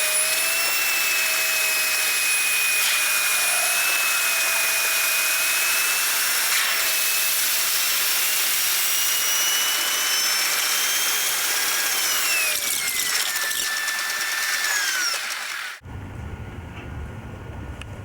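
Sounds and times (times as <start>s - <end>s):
quiet low rumble: 15.8s - 18.0s.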